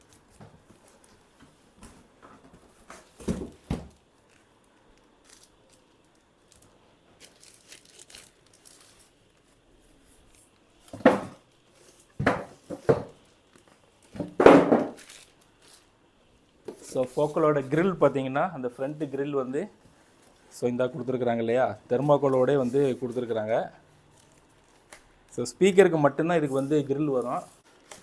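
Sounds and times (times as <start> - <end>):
packaging crinkling and tearing: 4.2 - 9.7, 15.0 - 15.9.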